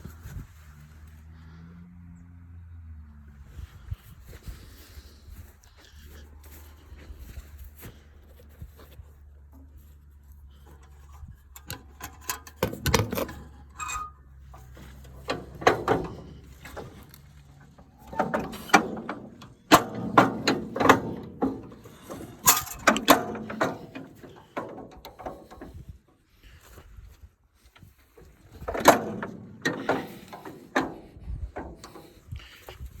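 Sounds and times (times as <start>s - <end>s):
metal clanking: 10.5s - 25.9s, 28.4s - 33.0s.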